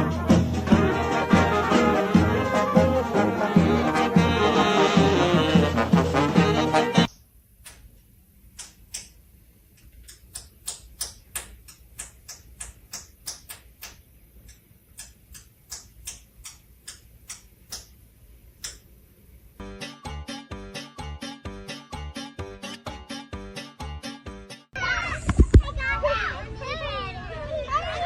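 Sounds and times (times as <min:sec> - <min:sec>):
sharp clicks: 0:07.6 - 0:07.9, 0:08.5 - 0:09.2, 0:09.8 - 0:18.0, 0:18.6 - 0:18.9.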